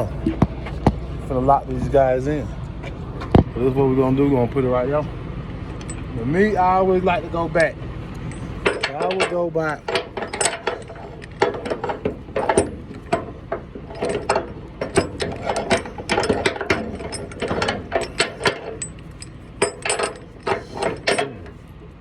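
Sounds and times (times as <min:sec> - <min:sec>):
metal chain clanking: 0:05.6 - 0:21.7.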